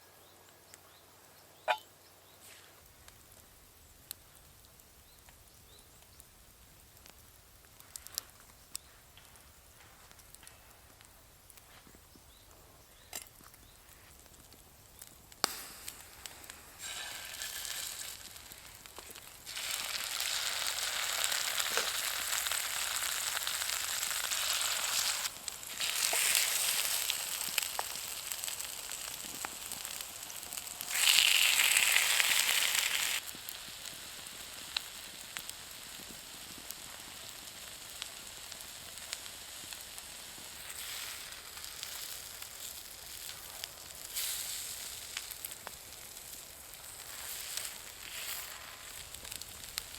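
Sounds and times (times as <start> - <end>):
faint fire crackles: 0.0 - 49.9
food sizzling in a hot pan: 15.5 - 49.9.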